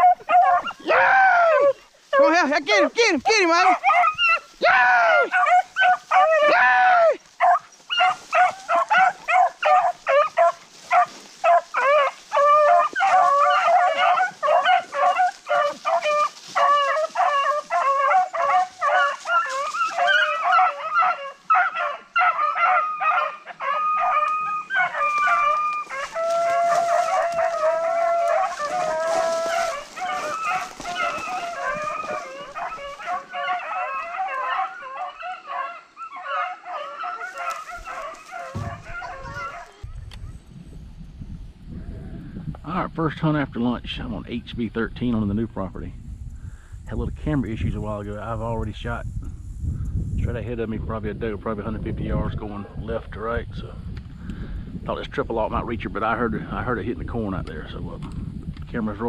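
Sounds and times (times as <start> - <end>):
dogs howling: 0.0 - 40.0
hounds yelping and baying: 0.0 - 40.4.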